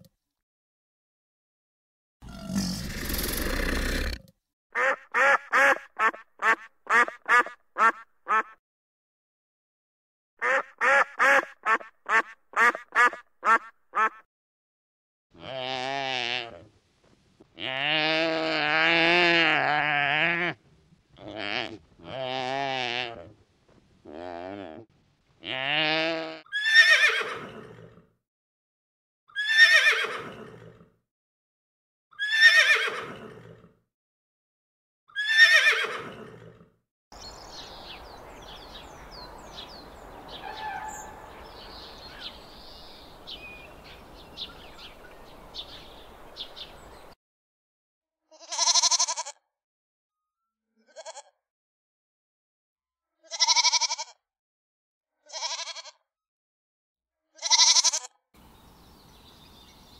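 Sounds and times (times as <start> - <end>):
goat bleating: 17.6 - 20.6, 21.2 - 23.4, 25.4 - 26.4, 48.3 - 49.4, 50.9 - 51.3, 53.3 - 54.2, 55.3 - 56.0, 57.4 - 58.1
horse whinnying: 26.5 - 28.0, 29.4 - 30.6, 32.2 - 33.4, 35.2 - 36.4, 40.4 - 41.3
bird chirps: 37.2 - 47.2, 58.4 - 59.9.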